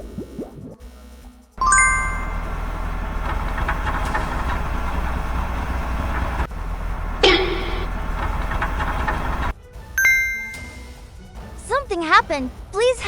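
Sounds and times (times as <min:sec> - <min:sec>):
cartoon background music: 0:00.1 - 0:02.8, 0:09.5 - 0:13.0
bright chime: 0:01.6 - 0:02.5, 0:10.0 - 0:10.8
steady low hum: 0:02.1 - 0:09.5.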